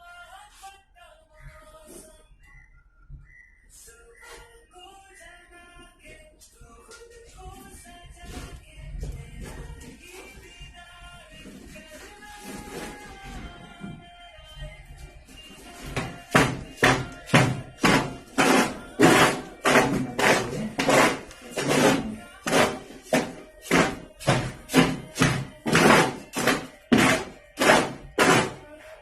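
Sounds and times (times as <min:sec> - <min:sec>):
hammering on concrete: 0:16.0 - 0:28.6.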